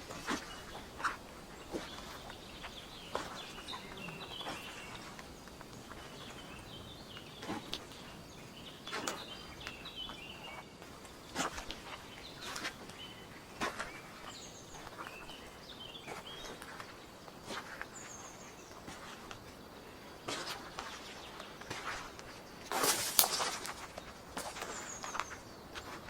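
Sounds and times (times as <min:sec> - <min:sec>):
birds chirping: 0:00.0 - 0:26.0
steady outdoor hiss: 0:00.0 - 0:26.0
sharp crackles: 0:20.3 - 0:26.0.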